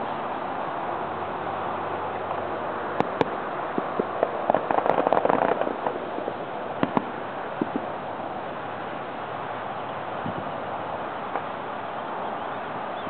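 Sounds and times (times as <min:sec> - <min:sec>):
steady background hiss: 0:00.0 - 0:13.0
crackling firework pops: 0:02.3 - 0:08.0, 0:11.3 - 0:11.5
firework bangs: 0:02.3 - 0:08.8.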